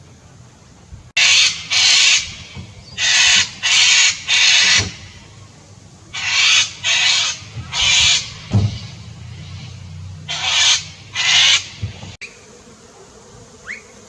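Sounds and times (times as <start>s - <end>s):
harsh screeching bird calls: 1.2s - 5.3s, 6.1s - 12.4s.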